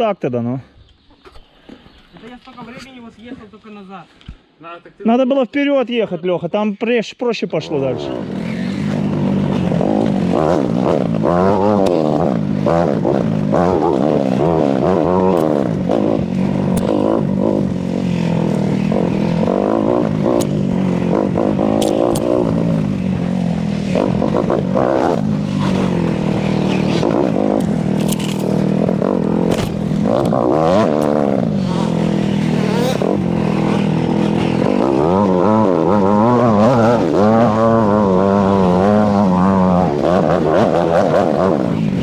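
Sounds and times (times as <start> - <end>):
motorcycle engine revving: 7.6 - 42.0
sharp clicks: 15.2 - 17.7, 18.4 - 22.9, 25.0 - 34.9.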